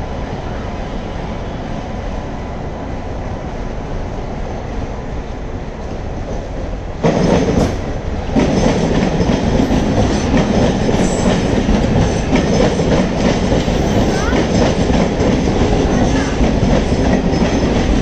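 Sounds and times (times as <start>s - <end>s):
train coaches running: 0.0s - 18.0s
train wheels clattering over joints: 6.4s - 18.0s.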